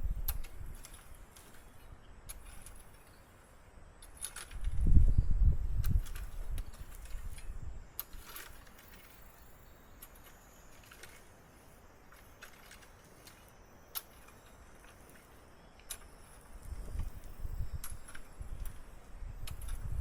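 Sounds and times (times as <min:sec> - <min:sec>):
faint clicks and ticks: 0:05.8 - 0:20.0.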